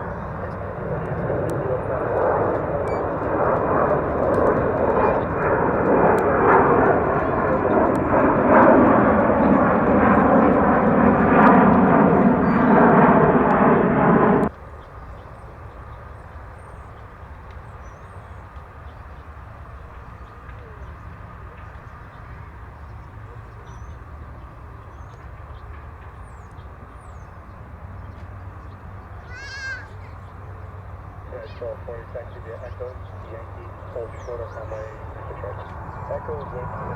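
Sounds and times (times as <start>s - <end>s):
jet engines roaring: 0.0s - 14.5s, 31.0s - 36.9s.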